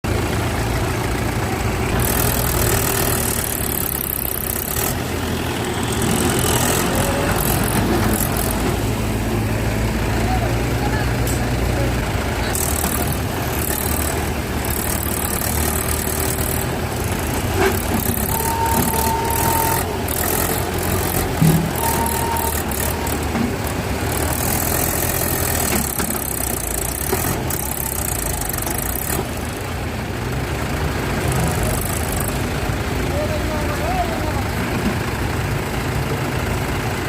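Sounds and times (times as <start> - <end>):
tractor diesel engine running: 0.0 - 37.0
brief high-pitched tones: 18.1 - 20.6, 21.4 - 23.4.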